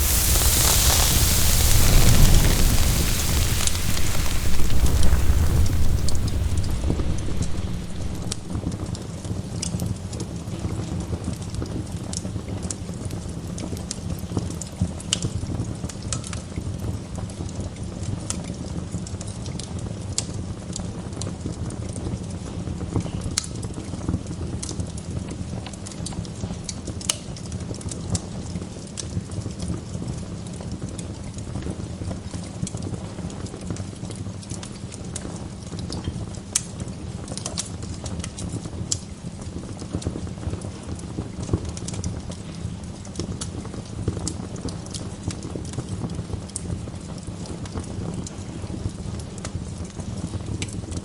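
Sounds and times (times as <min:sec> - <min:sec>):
wood fire crackling and popping: 0:00.0 - 0:09.3
low rush of flames: 0:00.0 - 0:09.4.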